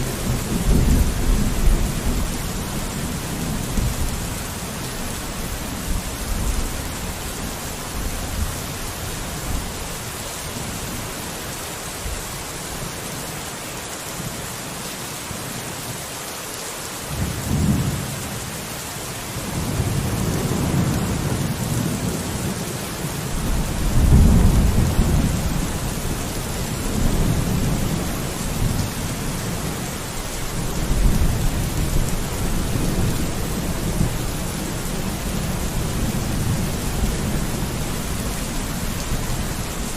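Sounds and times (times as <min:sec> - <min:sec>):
thunder rumbling: 0:00.0 - 0:04.8, 0:23.3 - 0:39.9
rain on a window: 0:00.0 - 0:39.9.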